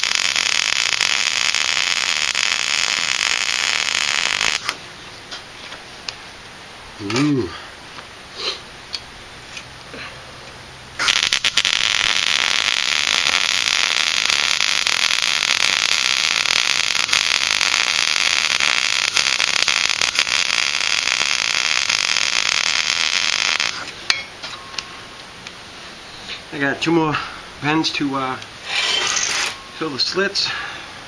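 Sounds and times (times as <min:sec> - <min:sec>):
welder arc crackling: 0:00.0 - 0:06.2, 0:11.0 - 0:24.2, 0:27.8 - 0:29.6.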